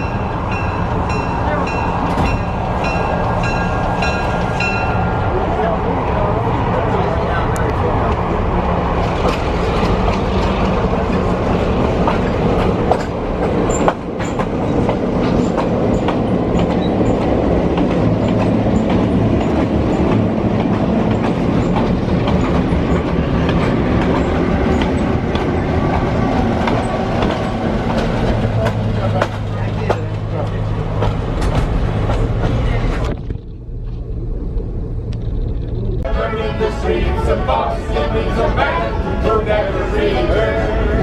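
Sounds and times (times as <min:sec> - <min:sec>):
train wheels rumbling on rails: 0:00.0 - 0:41.0
low hum: 0:32.7 - 0:41.0.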